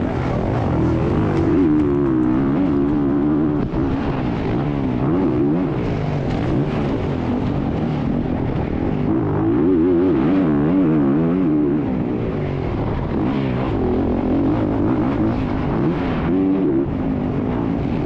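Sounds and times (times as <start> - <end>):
dirt bike engine revving: 0.0 - 11.9.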